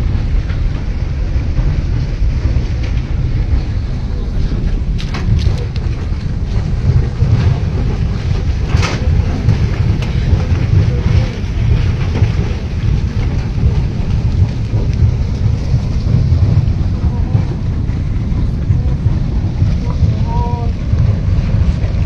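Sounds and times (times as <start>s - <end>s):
rushing mud and water rumble: 0.0s - 22.0s.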